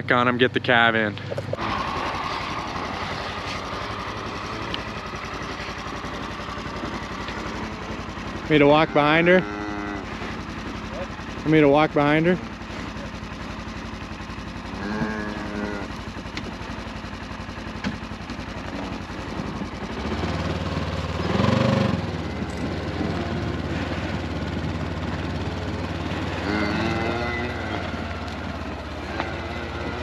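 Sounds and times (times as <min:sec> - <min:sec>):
vehicle engine running at low revs: 0:00.0 - 0:30.0
short calls: 0:25.3 - 0:30.0.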